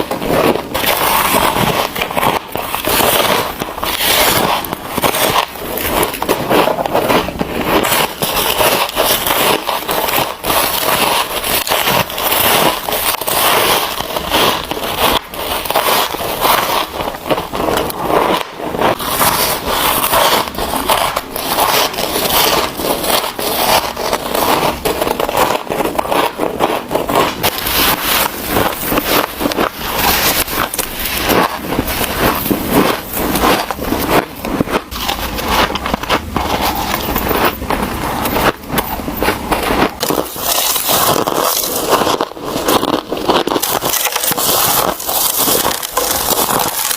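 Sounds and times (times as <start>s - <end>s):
frost crunching being chewed: 0.0s - 46.9s.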